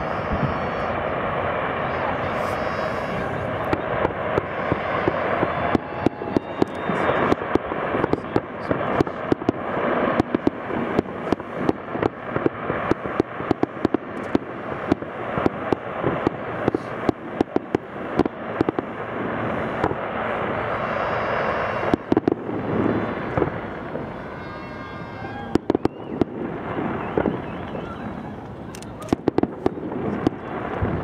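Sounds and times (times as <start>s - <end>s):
continuous rumbling: 0.0s - 31.0s
fireworks bangs: 0.0s - 31.0s.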